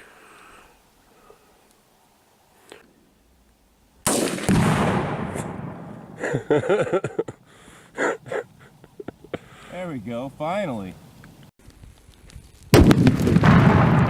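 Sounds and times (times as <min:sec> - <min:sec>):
rifle shot: 0:04.0 - 0:06.2, 0:12.7 - 0:14.0
explosion boom: 0:04.1 - 0:06.2, 0:12.7 - 0:14.0.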